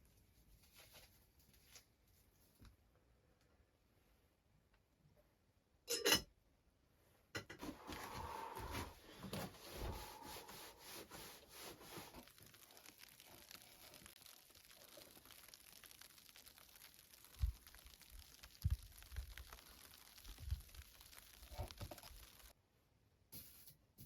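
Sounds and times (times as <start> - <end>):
rubbing and scraping of wood: 7.6 - 12.6
faint rustle: 7.6 - 22.5.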